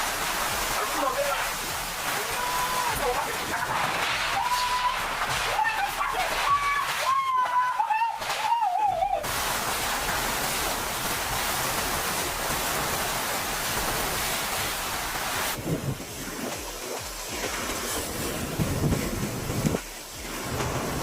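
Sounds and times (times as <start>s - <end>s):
steady rushing noise: 0.0s - 7.2s, 7.8s - 21.0s
wind buffeting microphone: 15.5s - 16.8s, 17.4s - 19.8s.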